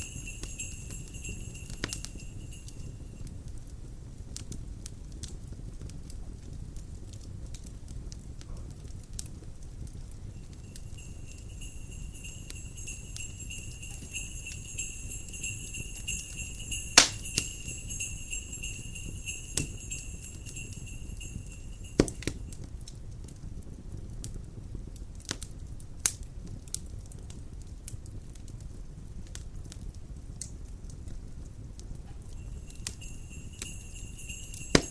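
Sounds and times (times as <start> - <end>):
sleigh bells ringing: 0.0 - 3.3, 10.3 - 22.6, 32.2 - 34.9
fireplace crackling: 0.0 - 34.9.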